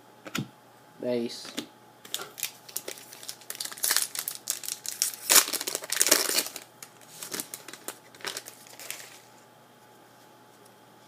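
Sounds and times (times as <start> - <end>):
wrapper tearing and crinkling: 2.1 - 9.3.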